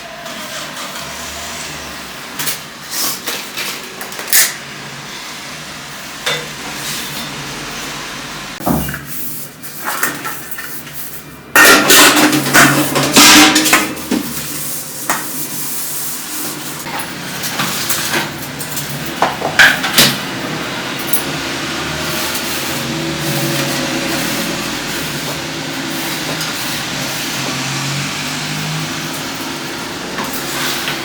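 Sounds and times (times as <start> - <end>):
dishes and pots clattering: 11.5 - 14.4.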